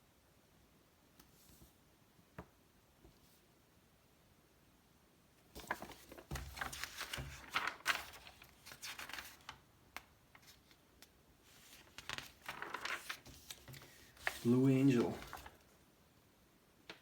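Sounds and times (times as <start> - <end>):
magazine pages rustling: 5.6 - 10.8, 11.4 - 15.7.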